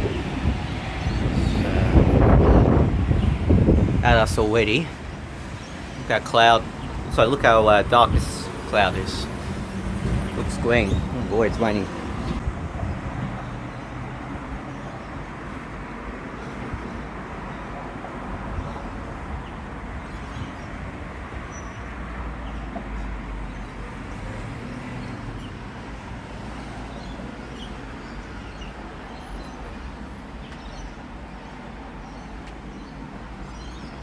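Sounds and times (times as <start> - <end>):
wind rumbling on microphone: 0.0 - 26.7.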